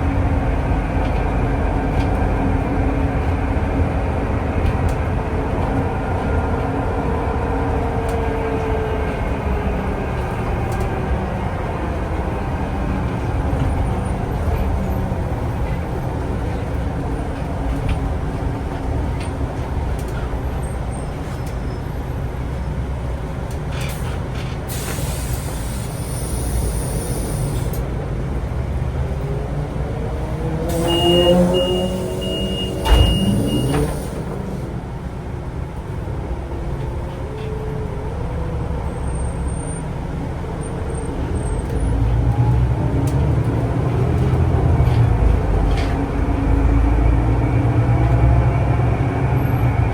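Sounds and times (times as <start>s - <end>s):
air hiss: 24.7s - 27.8s
high beeping tone: 30.8s - 33.8s
thump: 32.8s - 34.0s.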